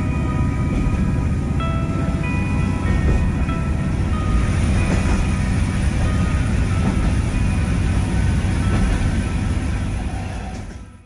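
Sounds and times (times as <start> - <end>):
diesel railcar rumble: 0.0 - 11.0.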